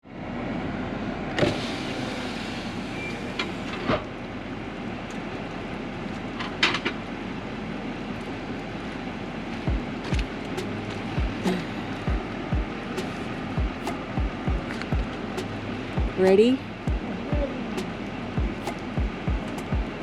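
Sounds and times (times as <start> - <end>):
vehicle road noise: 0.0 - 20.0.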